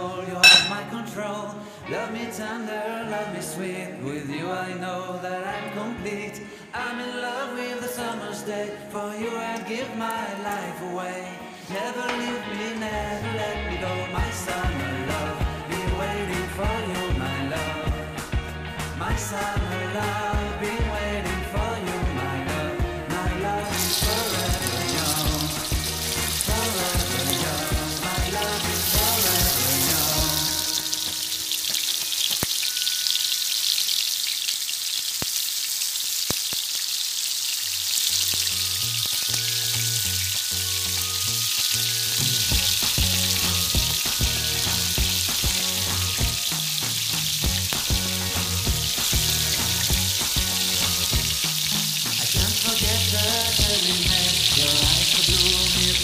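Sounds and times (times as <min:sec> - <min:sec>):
background music with a beat: 0:14.2 - 0:33.2, 0:38.4 - 0:56.0
meat patties sizzling in oil: 0:23.2 - 0:56.0.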